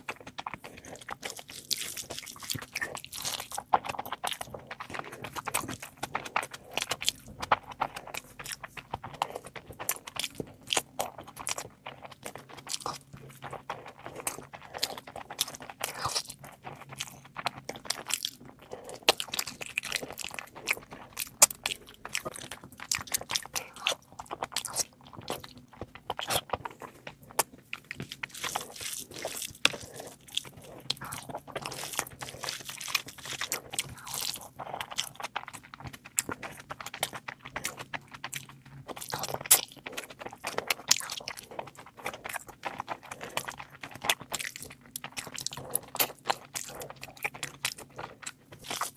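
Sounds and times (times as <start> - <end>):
person chewing and crunching food: 0.0 - 48.9.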